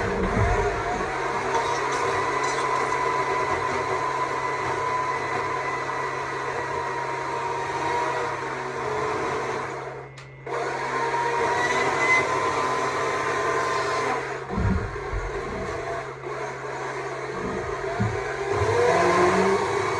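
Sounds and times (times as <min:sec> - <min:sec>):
electric chainsaw carving wood: 0:10.7 - 0:19.9.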